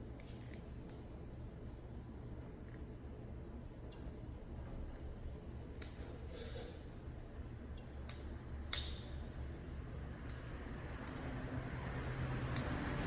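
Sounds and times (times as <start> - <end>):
low steady hum: 0.0 - 13.0
sharp metal clicks: 10.2 - 11.3.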